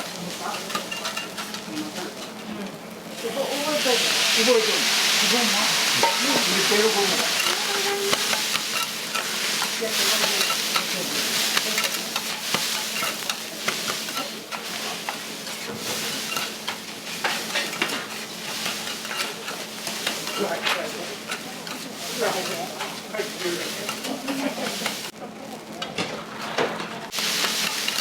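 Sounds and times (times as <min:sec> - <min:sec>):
food sizzling on griddle: 0:00.0 - 0:28.0
metal spatulas scraping and tapping: 0:00.4 - 0:02.4, 0:06.9 - 0:25.1, 0:27.4 - 0:28.0.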